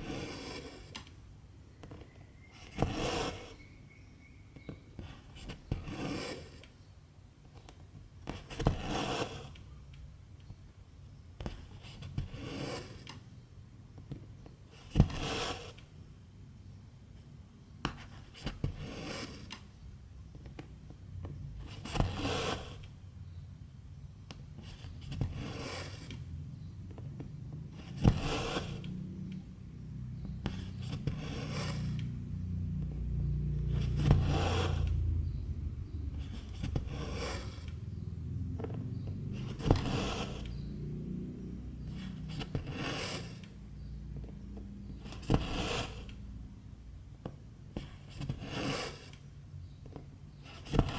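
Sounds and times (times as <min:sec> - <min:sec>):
low rumble: 0:32.0 - 0:41.8.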